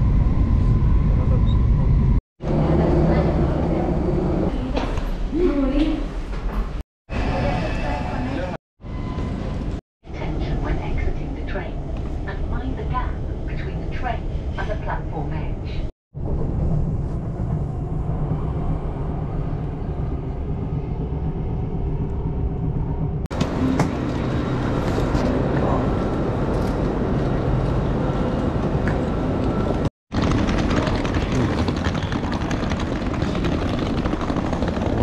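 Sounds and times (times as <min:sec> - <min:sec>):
large station ambience: 0:00.0 - 0:35.0
train running rumble: 0:16.2 - 0:35.0
wheeled suitcase on paving: 0:28.9 - 0:35.0.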